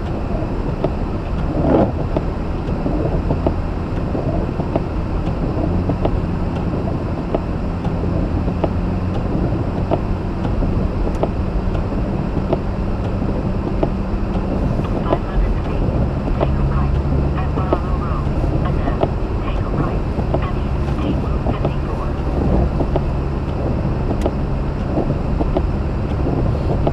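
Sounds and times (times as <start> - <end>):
car engine running: 0.0 - 26.9
light ticks: 0.0 - 26.9
road noise: 0.0 - 26.9.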